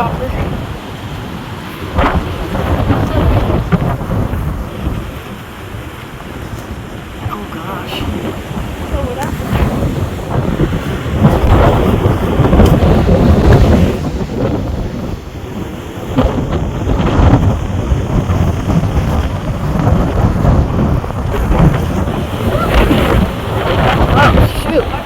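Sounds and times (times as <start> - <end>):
heavy rain: 0.0 - 25.0
wind gusting: 0.0 - 25.0
wind rumbling on microphone: 0.0 - 25.0.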